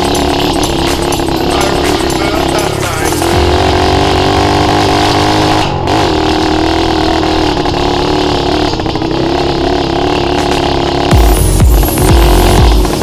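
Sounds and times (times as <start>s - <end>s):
motorbike engine at high revs: 0.0s - 13.0s.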